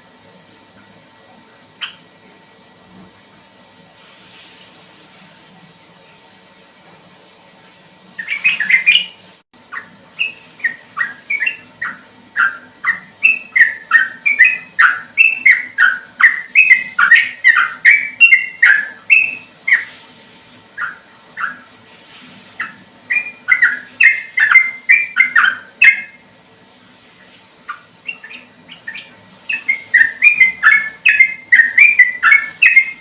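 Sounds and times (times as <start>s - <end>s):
bird singing falling whistled notes: 23.1s - 26.2s, 28.1s - 33.0s.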